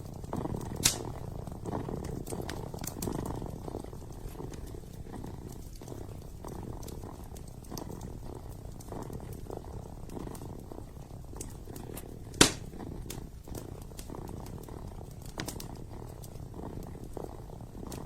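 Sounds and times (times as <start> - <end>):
fireplace crackling and popping: 0.0 - 18.0
kitten purring: 0.0 - 18.0.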